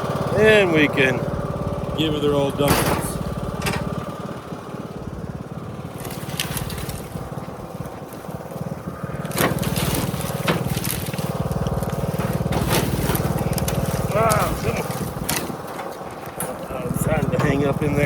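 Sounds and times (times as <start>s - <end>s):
small engine running: 0.0s - 18.0s
branches knocking and cracking: 5.8s - 18.0s.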